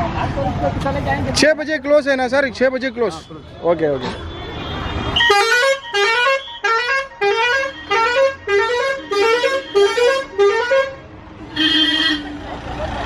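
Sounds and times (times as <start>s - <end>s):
musical vehicle horn: 4.6s - 12.4s.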